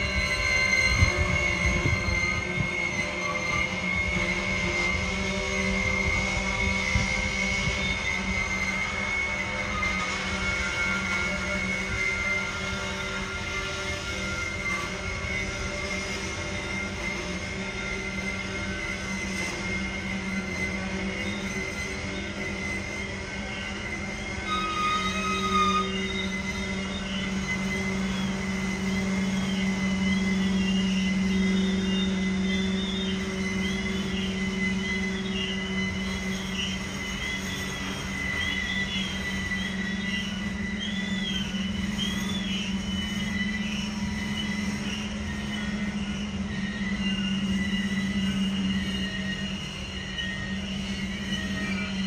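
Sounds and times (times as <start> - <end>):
low hum: 0.0 - 52.0
wheels squealing against rail: 0.0 - 52.0.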